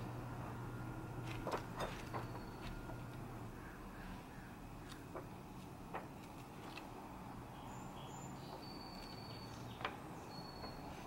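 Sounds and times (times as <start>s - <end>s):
faint high-pitched bird chirps: 7.5s - 11.0s.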